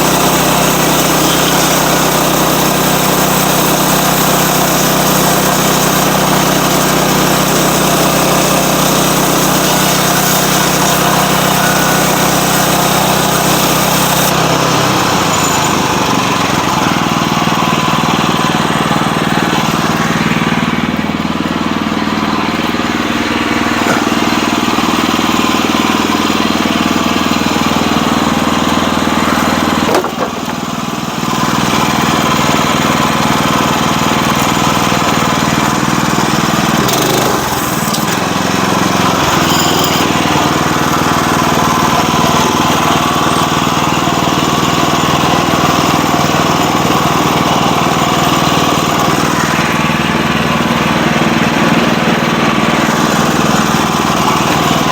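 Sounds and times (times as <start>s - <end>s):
sawmill engine running: 0.0s - 54.9s.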